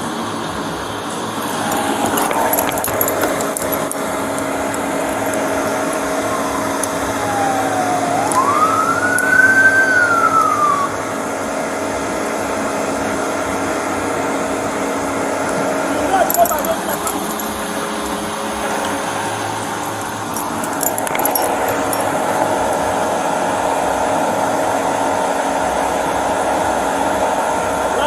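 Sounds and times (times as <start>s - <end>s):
steady mechanical hum: 0.0s - 28.0s
emergency siren wailing: 1.4s - 12.4s, 15.7s - 23.6s.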